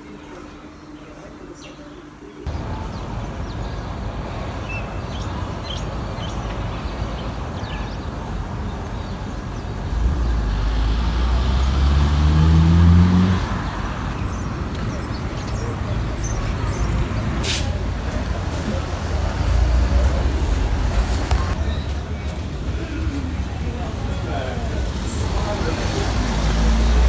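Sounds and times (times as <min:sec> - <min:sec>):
road traffic noise: 0:02.5 - 0:27.0
vehicle engine speeding up: 0:09.8 - 0:14.1, 0:24.9 - 0:27.0.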